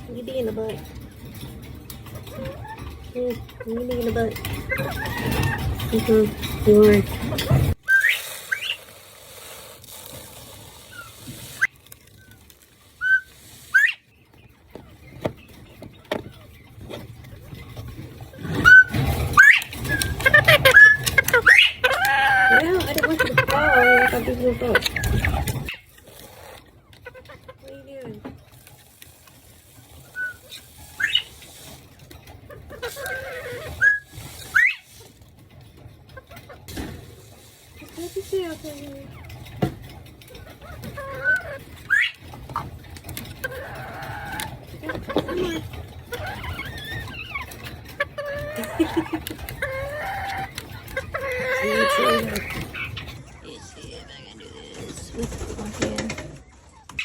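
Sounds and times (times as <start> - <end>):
quail chirping: 4.5 - 5.8, 7.2 - 9.0, 10.7 - 27.8, 29.4 - 35.2, 35.8 - 57.0
quail whistled chirps: 7.8 - 8.8.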